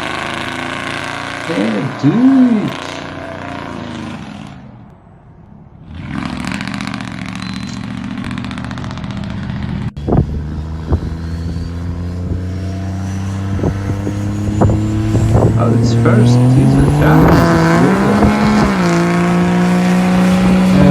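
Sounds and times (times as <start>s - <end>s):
truck engine running: 0.0s - 20.9s.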